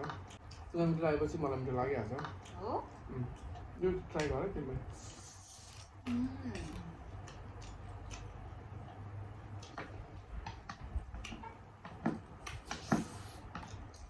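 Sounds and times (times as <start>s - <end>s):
eating crunches and clicks: 5.0s - 11.4s.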